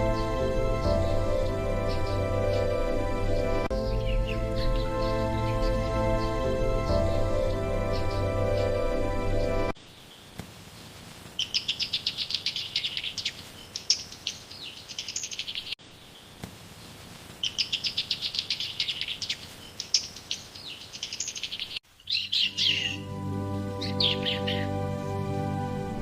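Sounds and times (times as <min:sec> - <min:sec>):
soft music: 0:00.0 - 0:09.8, 0:22.2 - 0:26.0
songbird trilling: 0:11.4 - 0:15.8, 0:17.4 - 0:23.1, 0:23.8 - 0:24.7.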